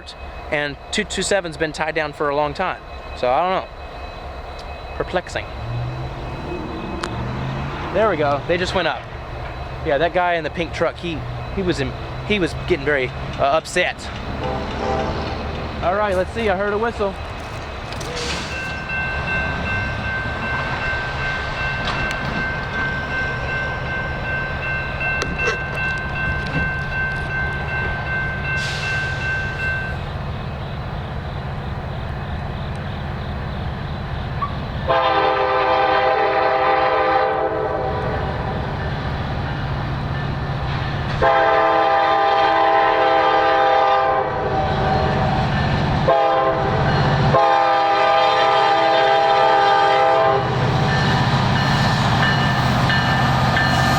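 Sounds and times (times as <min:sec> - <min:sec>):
diesel locomotives rumbling: 0:00.0 - 0:53.9
locomotive air horn blasts: 0:14.4 - 0:15.2, 0:34.9 - 0:38.4, 0:41.2 - 0:45.1, 0:46.1 - 0:50.7.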